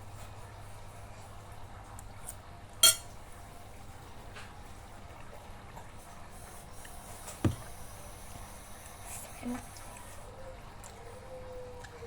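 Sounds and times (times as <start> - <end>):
utensil clinking against bowl: 2.8 - 3.2
faint clicks of eating: 8.8 - 11.2, 11.8 - 12.0.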